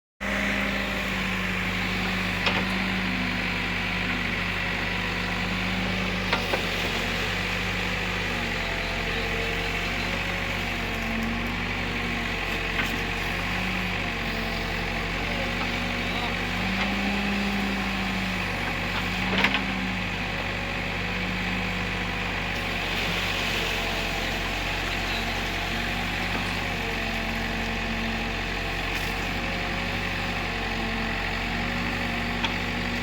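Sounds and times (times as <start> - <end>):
diesel engine running: 0.2 - 33.0.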